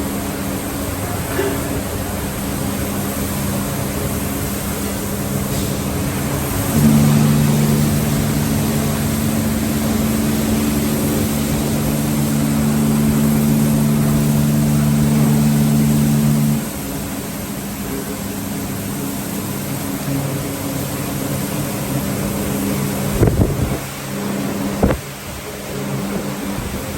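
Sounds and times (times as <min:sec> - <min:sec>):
low machine hum: 0:00.0 - 0:19.2
car wash rushing noise: 0:00.0 - 0:26.9.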